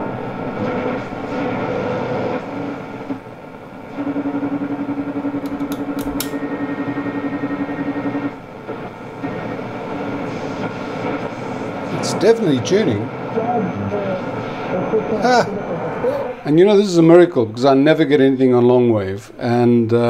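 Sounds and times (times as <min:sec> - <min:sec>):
steady radio tone: 0:00.0 - 0:05.5, 0:06.4 - 0:17.5
radio static hiss: 0:00.0 - 0:18.5
clicks: 0:05.4 - 0:06.4.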